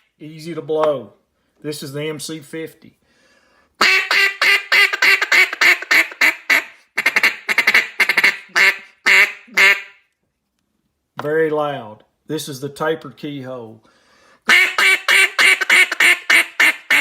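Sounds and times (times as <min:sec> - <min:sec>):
duck call quacks: 0:03.8 - 0:10.0, 0:14.5 - 0:17.0.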